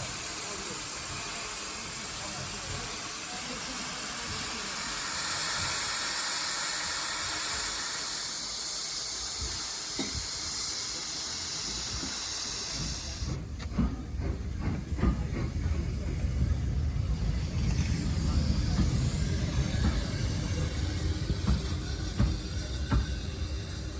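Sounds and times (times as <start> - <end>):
steam locomotive hissing: 0.0 - 23.9
low rumbling: 15.7 - 21.5.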